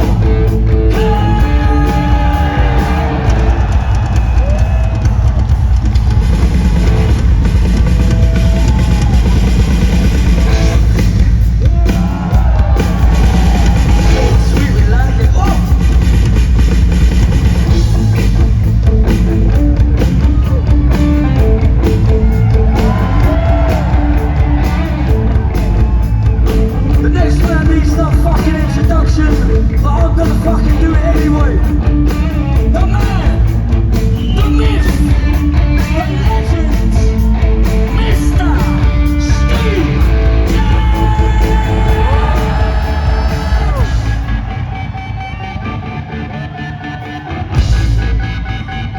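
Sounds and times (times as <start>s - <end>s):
person singing and shouting: 0.0s - 3.6s, 34.4s - 44.4s
electric guitar: 0.0s - 5.8s, 6.6s - 48.9s
bass guitar: 0.0s - 48.9s
drums: 0.0s - 48.9s.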